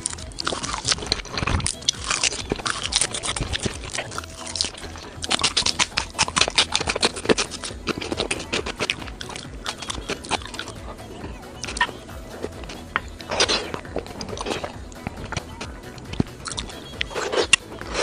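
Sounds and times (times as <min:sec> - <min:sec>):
close chewing: 0:00.0 - 0:18.0
crisp crackling clicks: 0:00.0 - 0:18.0.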